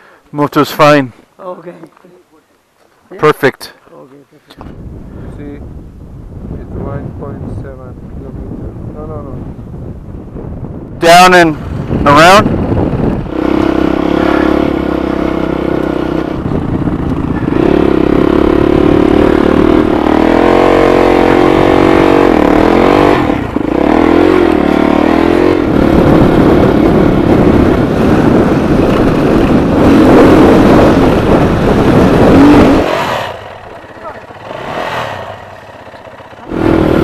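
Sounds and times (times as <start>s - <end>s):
wind noise on microphone: 4.6s - 33.4s
dirt bike engine revving: 11.1s - 37.0s.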